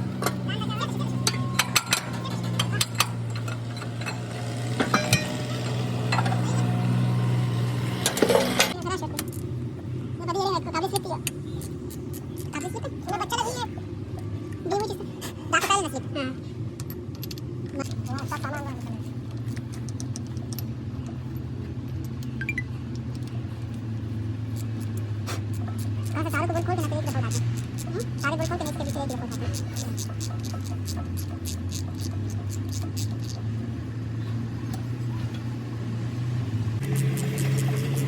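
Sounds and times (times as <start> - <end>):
low machine hum: 0.0 - 38.0
metal clinks and knocks: 0.1 - 6.7, 16.8 - 18.5.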